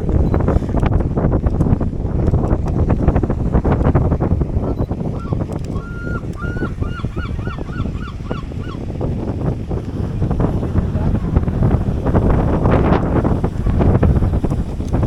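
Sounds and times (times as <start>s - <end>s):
wind buffeting microphone: 0.0s - 15.0s
bird calling short repeated notes: 4.7s - 8.8s.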